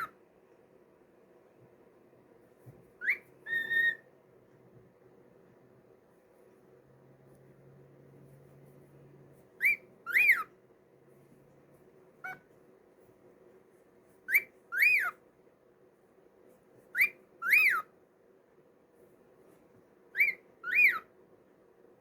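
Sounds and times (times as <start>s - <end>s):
cockatiel whistling: 3.0s - 4.0s, 9.6s - 10.5s, 14.3s - 15.2s, 16.9s - 17.9s, 20.1s - 21.1s.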